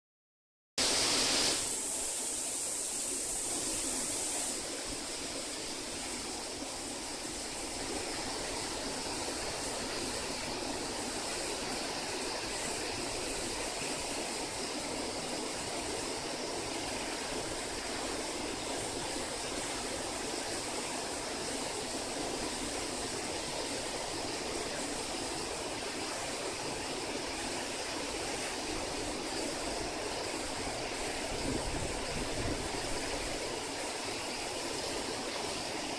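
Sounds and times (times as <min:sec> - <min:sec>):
water rushing down waterfall: 0:00.8 - 0:35.9.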